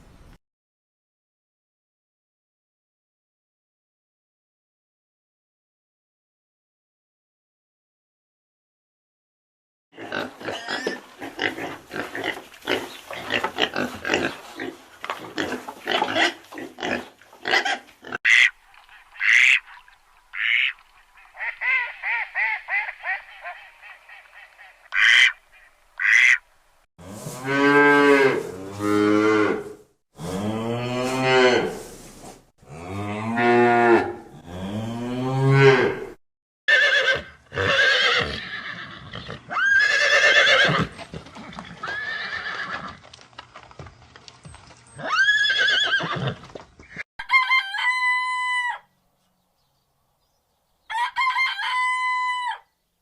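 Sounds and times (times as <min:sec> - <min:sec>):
quack-like calls: 0:17.4 - 0:18.6, 0:19.2 - 0:19.7, 0:20.3 - 0:26.4.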